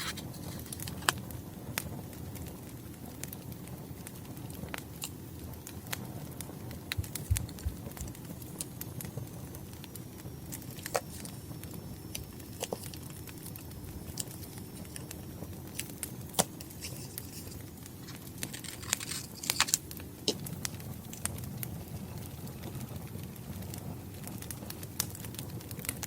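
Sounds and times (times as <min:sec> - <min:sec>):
wood fire crackling and popping: 0:00.0 - 0:26.0
paper rustling: 0:16.7 - 0:19.8.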